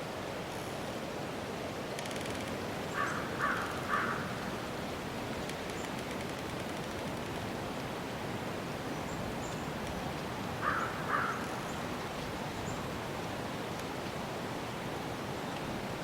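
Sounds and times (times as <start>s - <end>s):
outdoor ambience noise: 0.0s - 16.0s
harsh bird calls: 10.6s - 11.9s.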